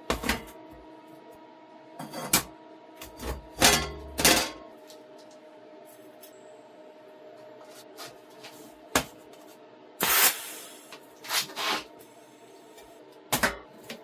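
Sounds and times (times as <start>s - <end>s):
scraping or hissing burst: 10.0s - 10.9s.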